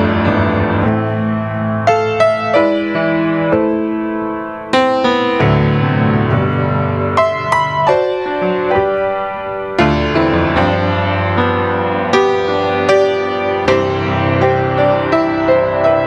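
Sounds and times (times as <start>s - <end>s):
slow gentle piano piece: 0.0s - 16.0s.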